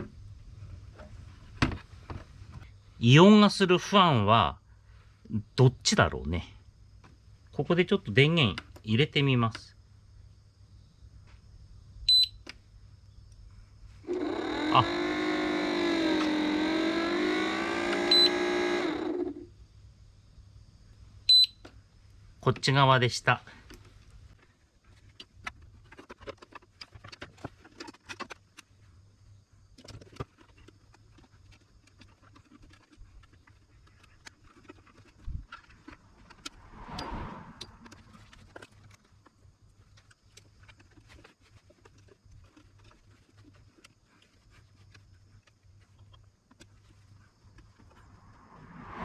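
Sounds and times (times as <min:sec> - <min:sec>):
short swelling noise: 0:48.4 - 0:49.0.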